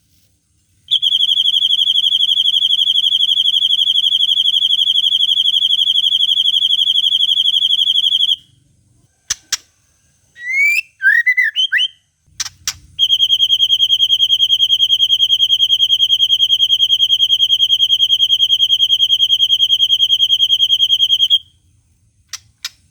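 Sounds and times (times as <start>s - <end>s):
bird singing a high trill: 10.4s - 12.0s
sharp clicks: 22.3s - 22.9s.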